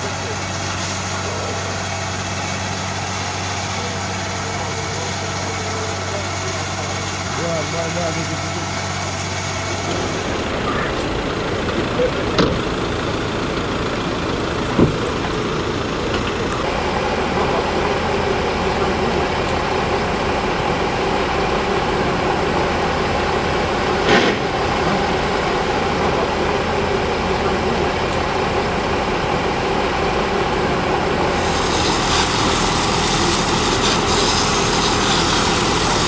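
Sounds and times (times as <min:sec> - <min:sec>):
vehicle engine idling: 0:00.0 - 0:36.0
hiss: 0:31.3 - 0:36.0.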